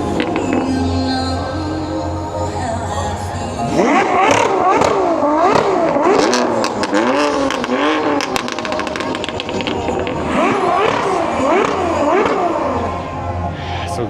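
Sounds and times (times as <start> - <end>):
exhaust crackles: 0.0 - 14.0
car engine revving: 3.4 - 14.0.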